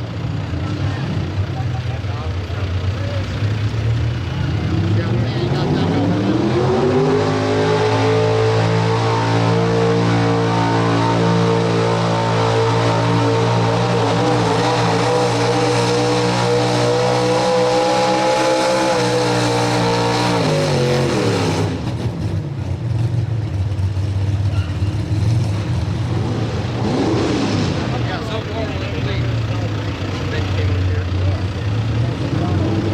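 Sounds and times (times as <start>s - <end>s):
truck engine at high revs: 0.0s - 32.9s.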